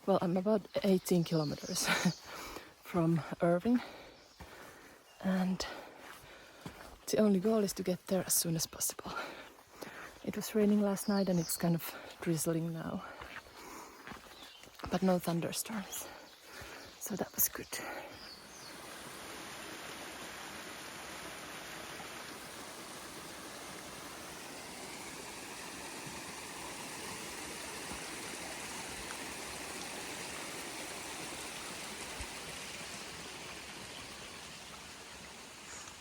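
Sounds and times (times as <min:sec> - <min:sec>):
running water rushing: 0:18.2 - 0:36.0.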